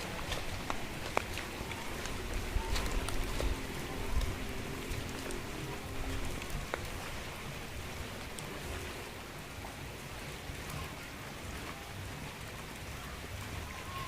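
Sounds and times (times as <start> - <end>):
sharp raindrops landing close: 0.0 - 9.1
steady rain falling: 0.0 - 14.0.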